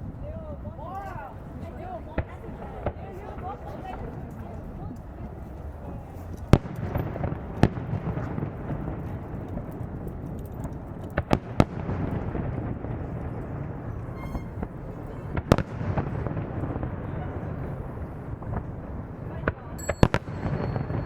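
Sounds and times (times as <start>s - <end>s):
continuous noisy background: 0.0s - 21.0s
fireworks bursting: 11.2s - 21.0s.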